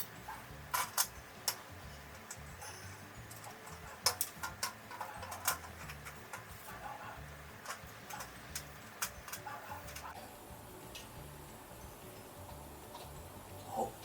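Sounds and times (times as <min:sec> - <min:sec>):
plastic and metal parts clicking: 0:03.3 - 0:06.5.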